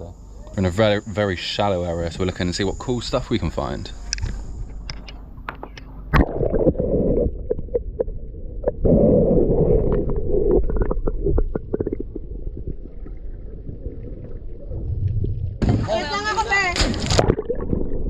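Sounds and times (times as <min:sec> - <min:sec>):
water sloshing and gurgling: 0:04.6 - 0:18.0.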